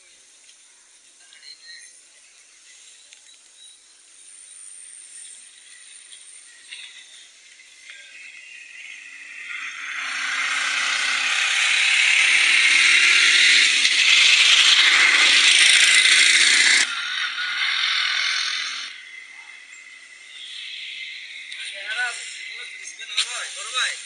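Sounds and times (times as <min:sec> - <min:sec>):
motorbike riding rattle and rush: 0:09.3 - 0:18.4.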